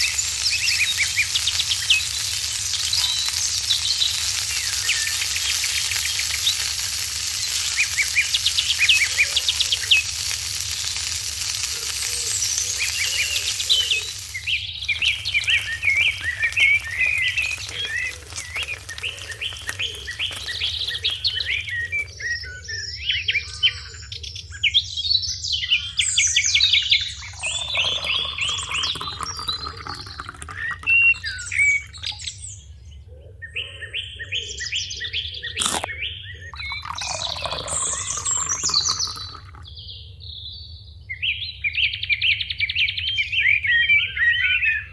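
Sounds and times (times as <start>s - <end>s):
food frying sizzle: 0.0s - 22.4s, 26.0s - 32.3s, 35.6s - 35.9s, 36.6s - 39.6s
small birds chirping: 0.0s - 44.9s.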